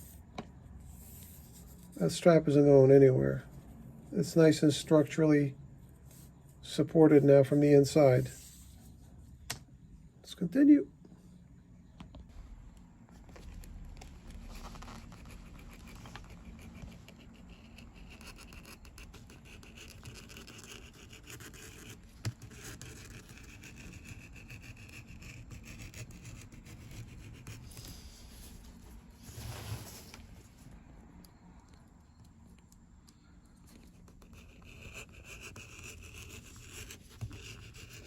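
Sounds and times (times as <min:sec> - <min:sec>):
scratchy sanding of leather: 0:14.3 - 0:28.6.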